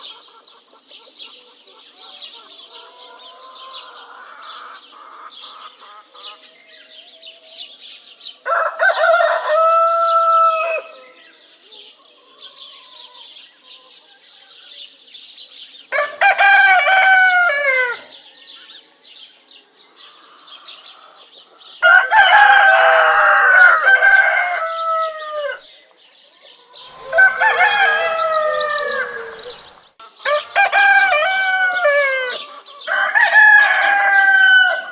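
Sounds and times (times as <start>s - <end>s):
roosters crowing: 8.4s - 11.0s, 15.9s - 18.1s, 21.8s - 25.7s, 26.8s - 34.9s
birds chirping: 18.1s - 33.0s
hen clucking: 21.9s - 25.6s, 26.8s - 30.1s.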